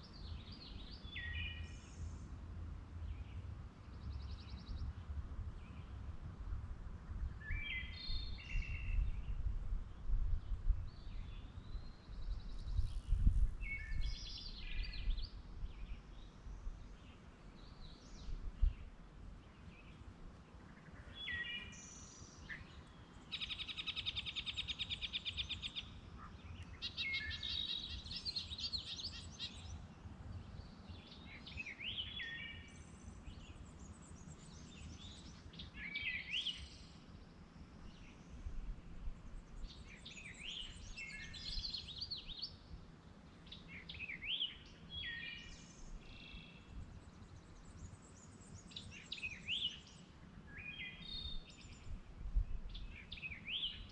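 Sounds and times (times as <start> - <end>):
songbirds singing: 0.0 - 6.4, 7.1 - 53.9
low wind rumble: 0.2 - 20.0, 51.1 - 53.0.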